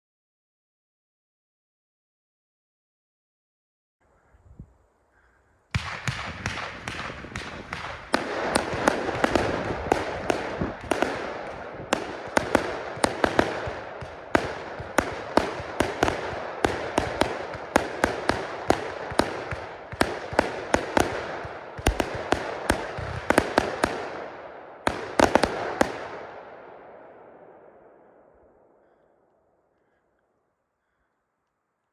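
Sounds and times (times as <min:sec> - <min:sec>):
fireworks bangs: 0:05.7 - 0:28.0.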